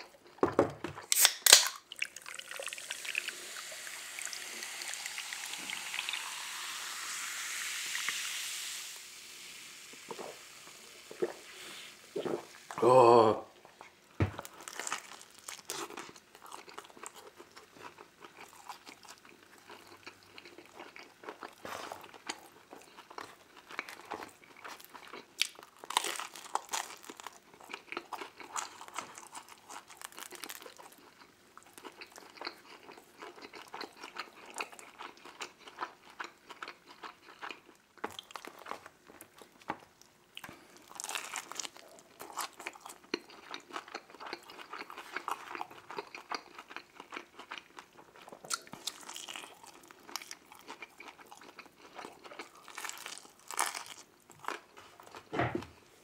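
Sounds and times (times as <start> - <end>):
person chewing pizza: 12.2 - 56.0.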